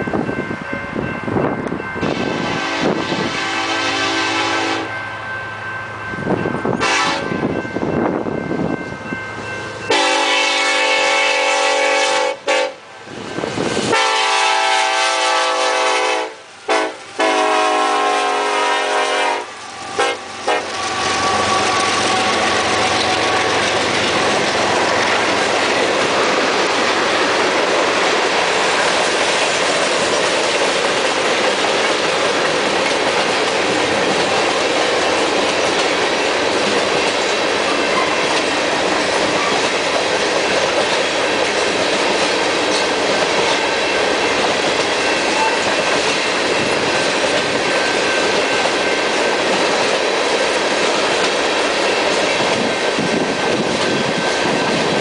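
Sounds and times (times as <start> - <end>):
locomotive air horn blasts: 2.0 - 5.0, 6.8 - 7.4, 9.9 - 12.8, 13.9 - 23.6
wheels running over rail joints: 19.3 - 55.0.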